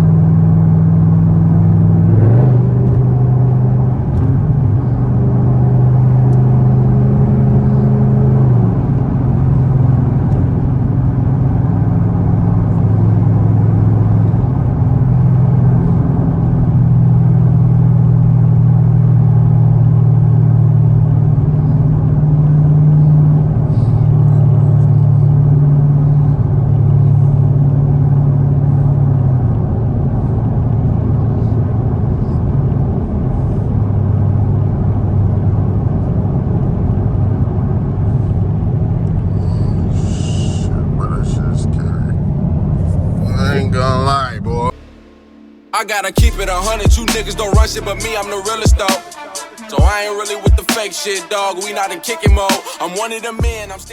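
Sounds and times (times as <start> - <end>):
car engine droning: 0.0 - 53.9.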